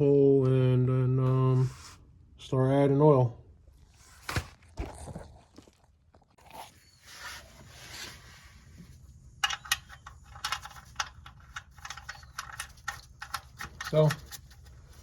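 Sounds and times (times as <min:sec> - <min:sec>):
metal tools clinking: 0:09.4 - 0:15.0.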